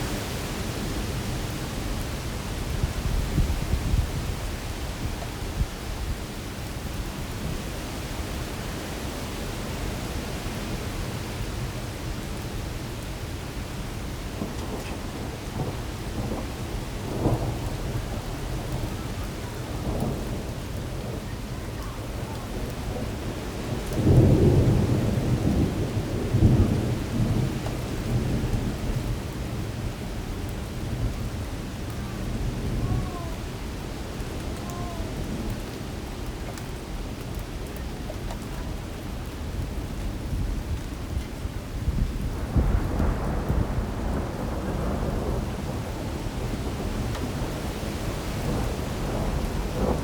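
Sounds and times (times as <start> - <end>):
thunder rumble: 0.0 - 6.3, 9.7 - 50.0
heavy rain in strong wind: 0.0 - 50.0.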